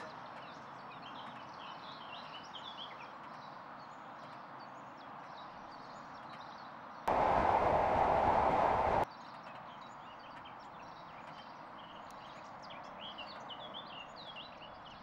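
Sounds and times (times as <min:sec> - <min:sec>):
loud rushing noise: 0:07.1 - 0:09.0
outdoor background hiss: 0:07.1 - 0:09.0.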